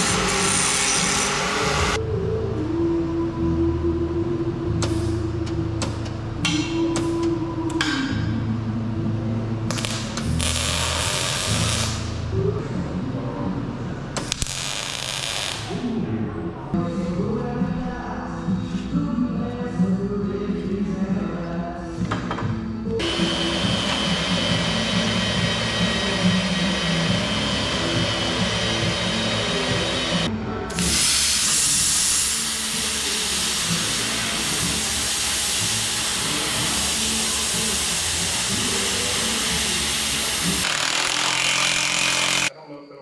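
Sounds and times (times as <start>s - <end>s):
power tool hissing: 0.0s - 2.0s, 23.0s - 42.5s
background music: 0.0s - 42.6s.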